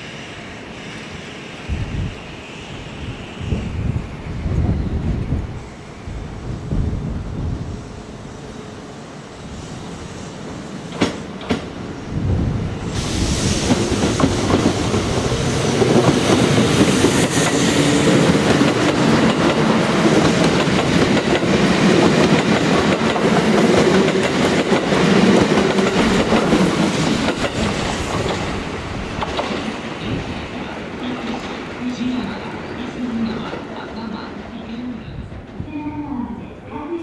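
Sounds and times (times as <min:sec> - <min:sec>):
train wheels clattering over rails: 0:10.8 - 0:11.8, 0:12.9 - 0:31.7.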